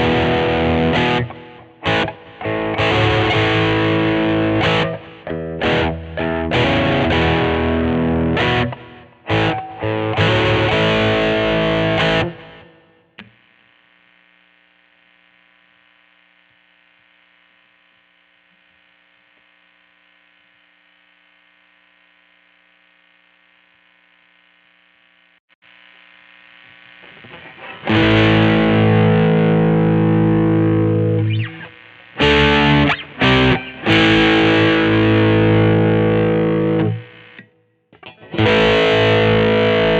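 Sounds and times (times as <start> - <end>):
distorted electric guitar chords: 0.0 - 13.5, 25.7 - 39.9.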